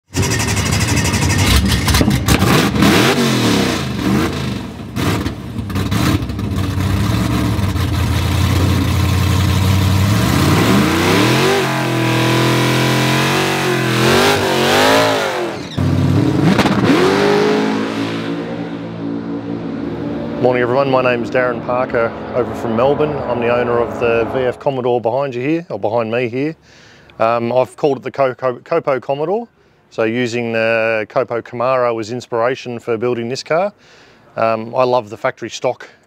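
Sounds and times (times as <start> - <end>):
drag car engine revving: 0.1 - 24.7.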